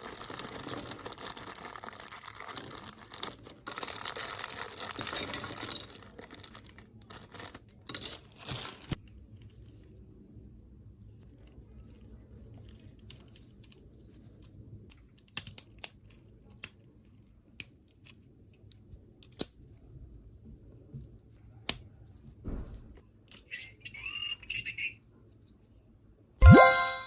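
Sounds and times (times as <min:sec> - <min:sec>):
plastic parts rattling: 0:00.0 - 0:09.0
plastic toy parts clicking: 0:14.4 - 0:16.9, 0:17.5 - 0:19.6.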